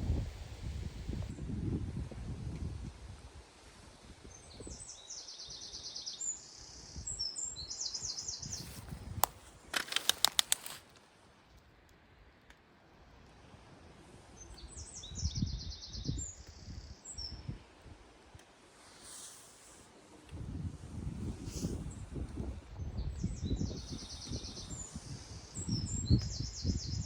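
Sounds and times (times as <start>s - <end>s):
wind buffeting microphone: 0.0s - 3.4s, 8.3s - 9.5s, 20.3s - 27.0s
sharp clicks: 9.1s - 11.0s.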